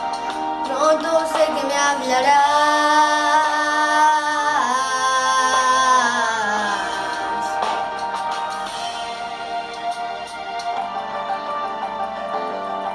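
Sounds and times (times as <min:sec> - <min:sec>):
song accompaniment: 0:00.0 - 0:12.9
person singing a long note: 0:00.6 - 0:08.2.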